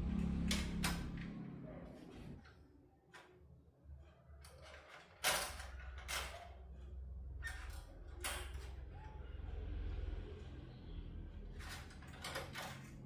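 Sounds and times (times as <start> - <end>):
low steady hum: 0.0 - 3.2
scrapes and knocks of tools: 2.1 - 8.9, 11.6 - 13.0.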